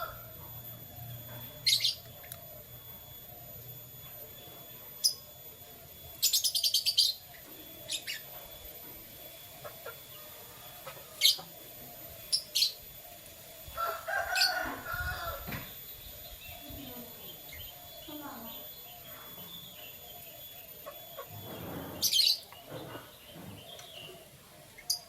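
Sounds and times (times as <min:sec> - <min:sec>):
canaries chirping: 0:00.0 - 0:25.0
fast bird trill: 0:01.5 - 0:02.1, 0:06.0 - 0:08.4, 0:13.6 - 0:25.0.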